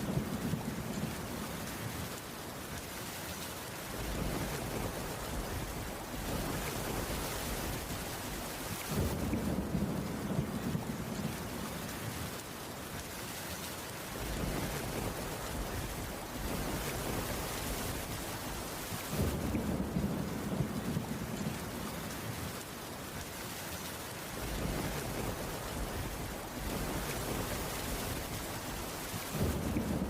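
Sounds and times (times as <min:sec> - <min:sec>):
heavy rain on wooden roof: 0:00.0 - 0:30.0
distant thunder rumble: 0:03.9 - 0:12.4, 0:14.1 - 0:22.6, 0:24.3 - 0:30.0.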